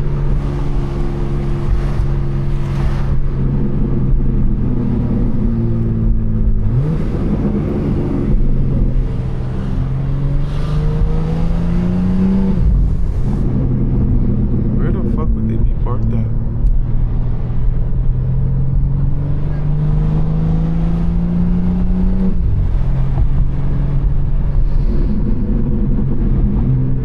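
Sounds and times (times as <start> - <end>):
car engine accelerating: 0.0 - 27.0
road rumble: 0.0 - 27.0.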